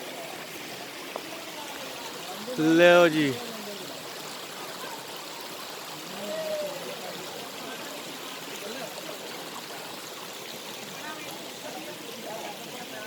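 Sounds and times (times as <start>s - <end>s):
faint voices of people: 0.0s - 13.0s
rush of running water: 0.0s - 13.0s.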